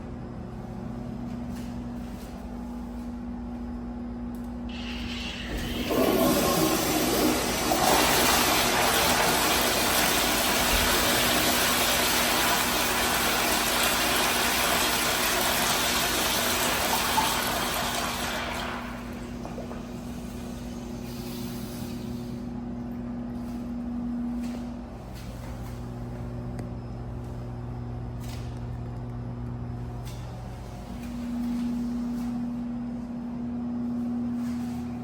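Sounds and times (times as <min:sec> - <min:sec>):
toilet flushing: 0:04.7 - 0:22.3.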